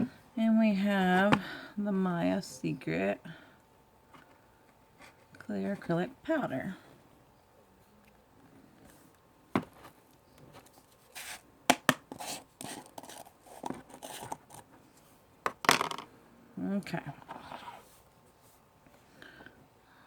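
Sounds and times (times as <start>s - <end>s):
plastic containers clicking and tapping: 11.7s - 14.5s.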